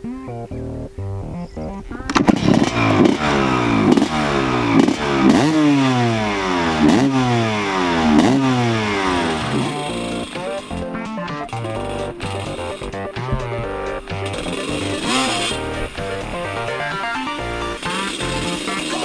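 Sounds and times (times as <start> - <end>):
motocross bike engine revving: 1.6 - 19.0.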